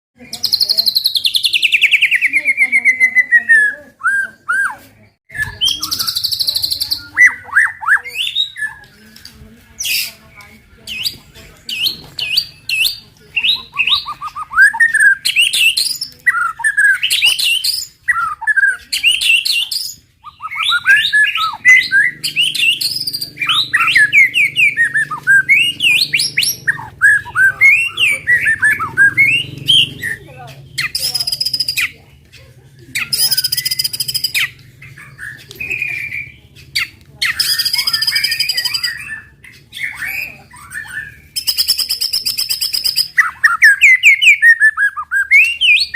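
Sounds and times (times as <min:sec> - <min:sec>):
bird singing whistled notes: 0:00.3 - 0:10.2, 0:10.8 - 0:32.0, 0:33.0 - 0:45.9.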